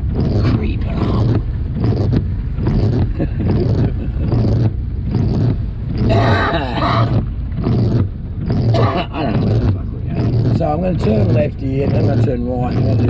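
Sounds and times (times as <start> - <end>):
car engine and road noise: 0.0 - 13.0
indistinct voice: 6.1 - 7.2.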